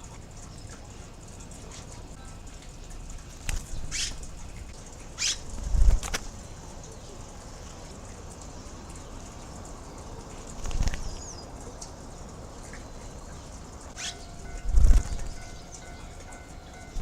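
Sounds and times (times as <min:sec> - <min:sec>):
birds' wings flapping: 0:03.2 - 0:06.5, 0:10.3 - 0:11.3, 0:14.0 - 0:15.5.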